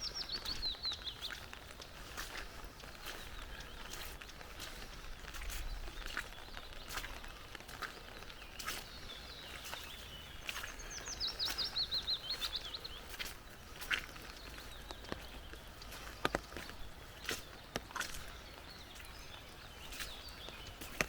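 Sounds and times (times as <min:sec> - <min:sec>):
footsteps on wet path: 0:00.0 - 0:21.0
forest background noise: 0:00.0 - 0:21.0
songbird trilling: 0:08.6 - 0:13.2.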